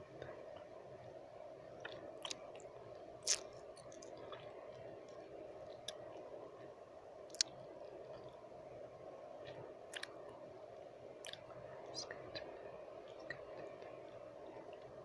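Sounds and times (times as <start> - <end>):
steady background noise: 0.0 - 15.0
wet mouth clicks and smacks: 1.8 - 2.4, 3.2 - 4.1, 7.3 - 7.5, 9.9 - 10.2, 11.2 - 11.4.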